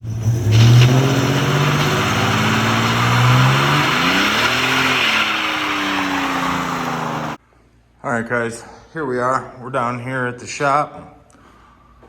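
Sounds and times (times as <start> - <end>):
loud drag-racing engine: 0.0 - 7.4.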